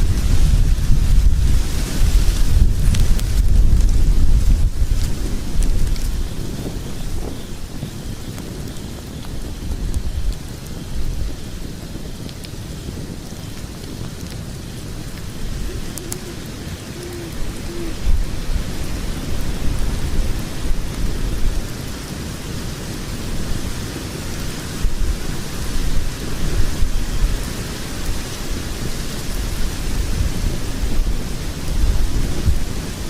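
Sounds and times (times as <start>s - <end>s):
fire crackling: 0.0s - 33.0s
fire roaring: 0.0s - 33.0s.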